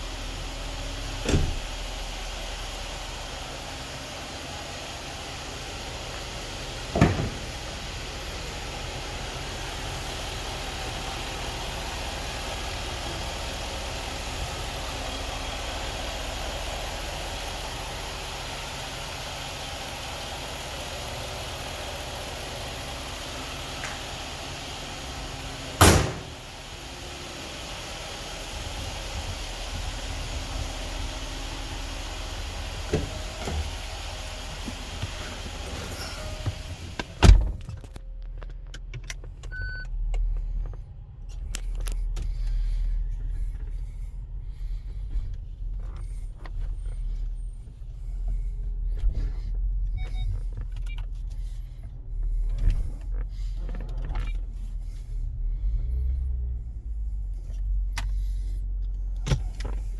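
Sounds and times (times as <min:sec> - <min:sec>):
car door shutting: 0:00.8 - 0:02.3, 0:06.7 - 0:07.8, 0:23.6 - 0:27.0, 0:30.2 - 0:38.0, 0:59.0 - 0:59.9.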